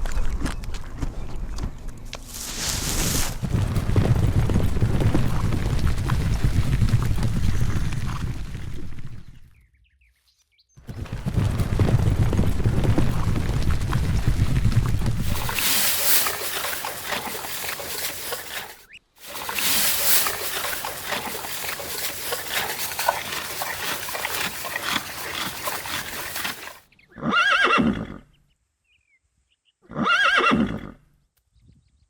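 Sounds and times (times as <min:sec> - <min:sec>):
horse hoofbeats: 0:00.8 - 0:09.5, 0:10.8 - 0:26.8
animal noises: 0:10.9 - 0:28.2.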